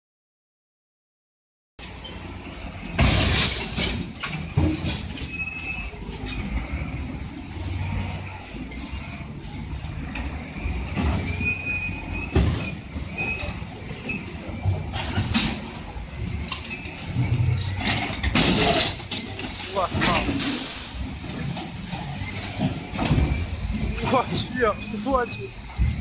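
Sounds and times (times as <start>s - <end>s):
bulldozer engine drone: 1.9s - 26.0s
high metallic squeals: 4.7s - 6.5s, 19.5s - 26.0s.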